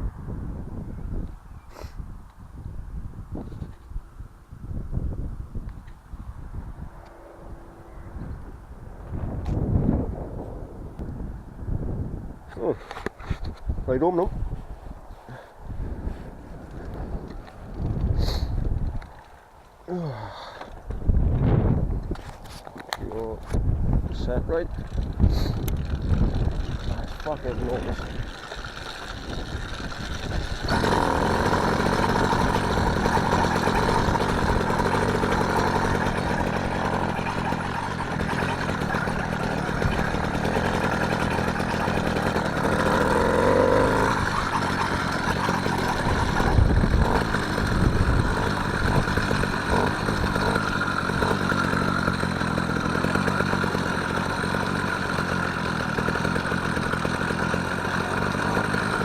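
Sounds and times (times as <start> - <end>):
motorised bicycle engine running: 24.2 - 59.0.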